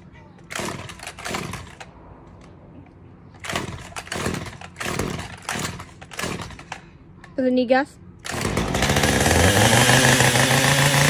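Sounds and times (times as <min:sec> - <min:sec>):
chainsaw idling and revving: 0:00.5 - 0:01.9, 0:03.4 - 0:06.7, 0:08.2 - 0:11.0.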